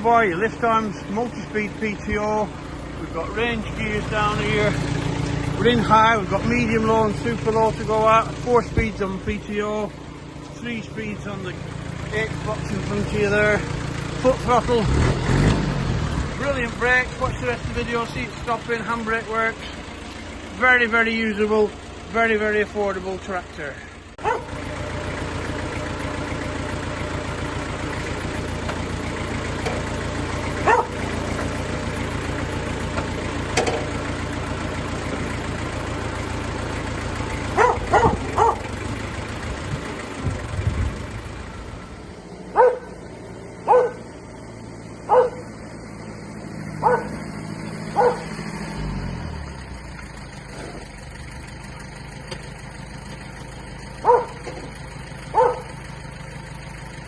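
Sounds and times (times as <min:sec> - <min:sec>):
tractor engine running: 0:00.0 - 0:57.0
dog barking: 0:24.2 - 0:24.5, 0:30.6 - 0:31.0, 0:37.5 - 0:38.7, 0:42.5 - 0:43.0, 0:43.6 - 0:44.0, 0:45.1 - 0:45.5, 0:46.8 - 0:47.2, 0:47.9 - 0:48.3, 0:54.0 - 0:54.4, 0:55.3 - 0:55.7.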